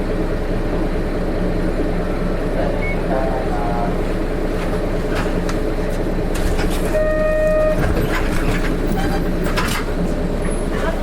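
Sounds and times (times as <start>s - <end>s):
bus diesel engine idling: 0.0s - 11.0s
bus doors closing: 2.1s - 11.0s
short steady beep: 2.8s - 3.1s, 7.0s - 7.8s.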